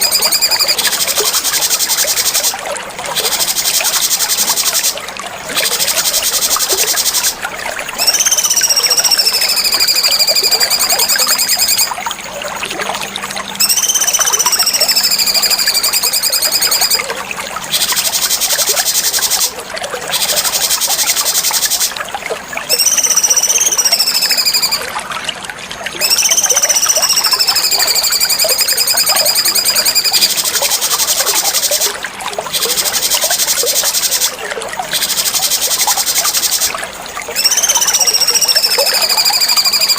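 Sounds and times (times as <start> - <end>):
bird whistled calls: 0.0 - 2.5, 8.0 - 12.0, 13.6 - 17.1, 22.7 - 24.9, 26.0 - 36.7, 37.4 - 39.9.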